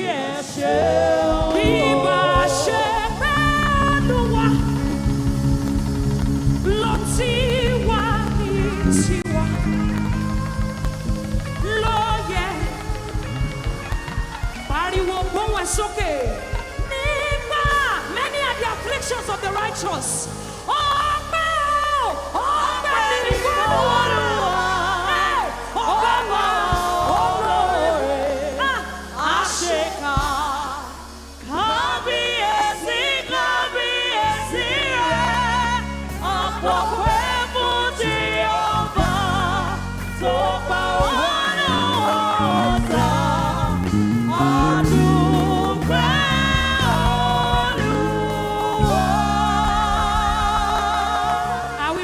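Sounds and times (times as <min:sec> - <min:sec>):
gospel singing with vibrato: 0:00.0 - 0:52.0
instrumental accompaniment with bass: 0:00.0 - 0:52.0.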